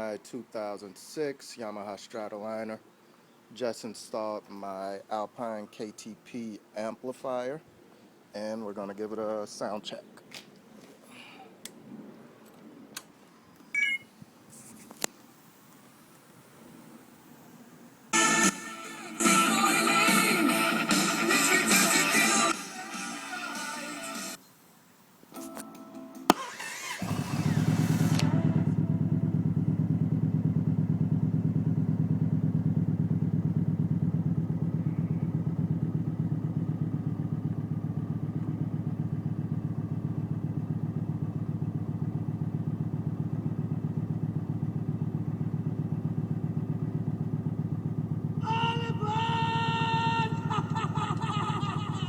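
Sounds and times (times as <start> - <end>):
motorcycle engine idling: 26.3 - 52.0.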